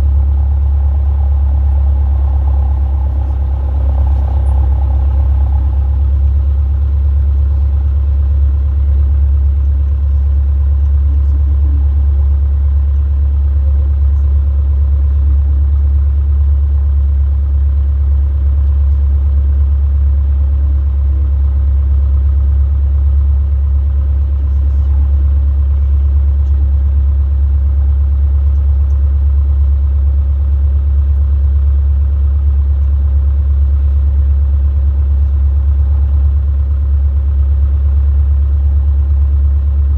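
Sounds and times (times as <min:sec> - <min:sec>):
light aircraft engine droning: 0:00.0 - 0:14.4.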